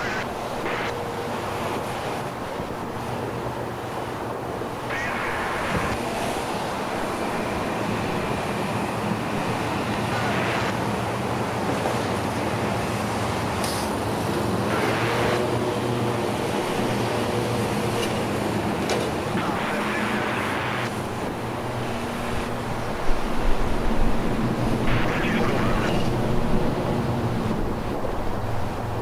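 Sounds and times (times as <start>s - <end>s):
rumble of vehicles: 0.0s - 29.0s
wind on microphone: 5.1s - 6.0s.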